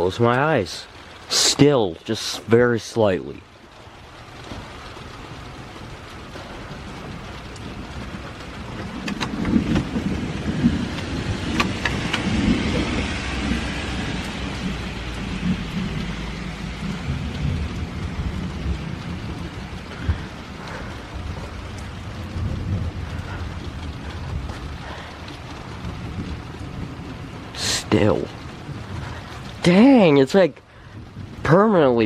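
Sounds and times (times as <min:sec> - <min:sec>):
heavy rain falling: 0:00.0 - 0:32.0
rolling thunder rumble: 0:03.4 - 0:32.0.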